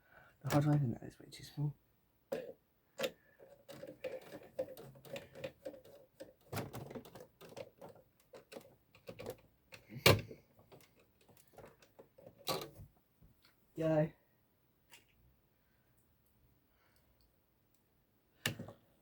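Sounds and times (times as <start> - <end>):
hard drive being handled: 2.4 - 12.8.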